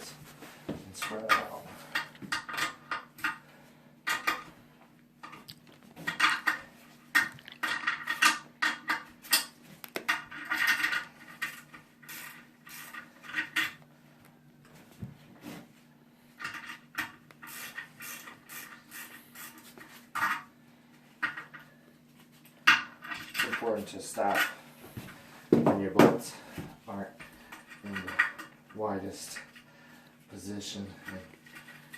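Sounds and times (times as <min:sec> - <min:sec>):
faint steady hum: 0:00.0 - 0:31.9.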